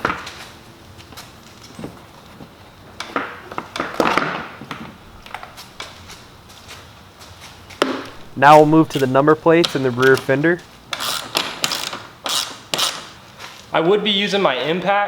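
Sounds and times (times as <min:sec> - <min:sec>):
scraping rustle: 0:04.9 - 0:10.8
hand tools clicking and clattering: 0:08.1 - 0:13.6.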